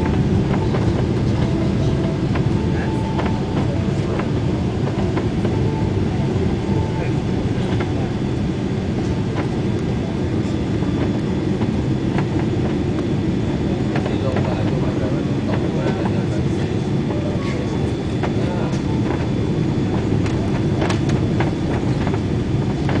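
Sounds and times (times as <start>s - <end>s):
airplane cabin engine rumble: 0.0s - 23.0s
light rattles and clicks: 18.2s - 23.0s.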